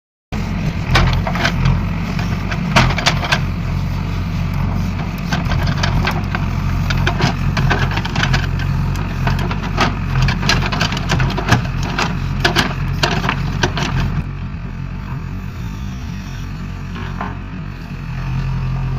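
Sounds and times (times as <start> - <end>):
heavy engine running: 0.3 - 18.9
clicks and knocks rattling: 5.3 - 14.2.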